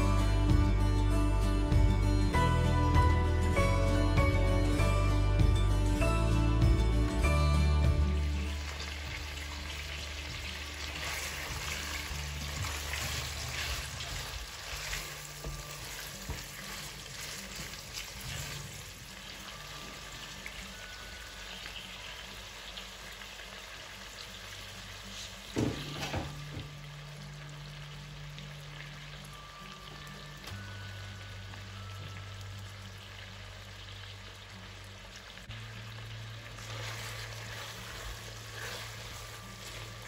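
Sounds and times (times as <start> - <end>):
background music: 0.0 - 40.0
chicken sizzling in pot: 6.6 - 40.0
spatula scraping a pot: 36.6 - 40.0.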